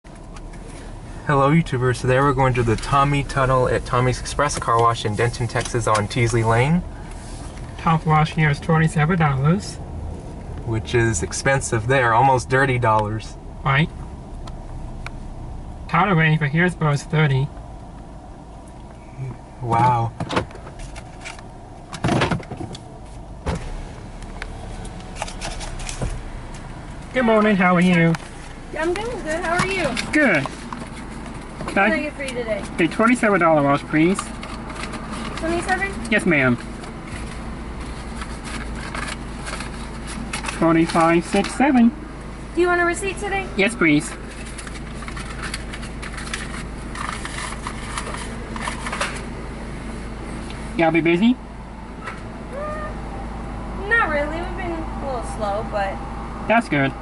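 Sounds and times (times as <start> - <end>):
car engine idling: 0.0 - 57.0
knocks and rustles: 24.7 - 26.7
small clicks and rustles: 44.2 - 49.3.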